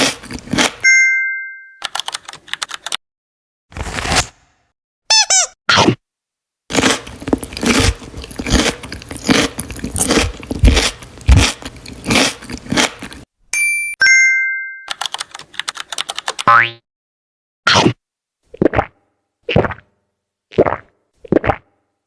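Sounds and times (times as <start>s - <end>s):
person chewing crunchy food: 0.0s - 0.8s, 6.7s - 13.3s
two-note ding chime: 0.8s - 1.8s, 13.6s - 15.0s.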